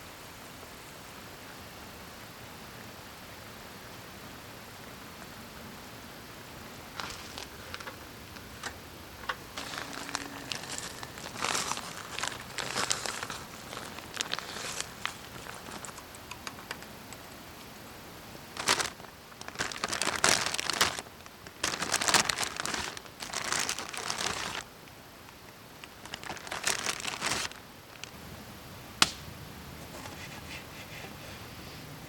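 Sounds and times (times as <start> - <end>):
bag crinkling and rustling: 6.9 - 16.0, 18.5 - 24.7, 25.8 - 28.1.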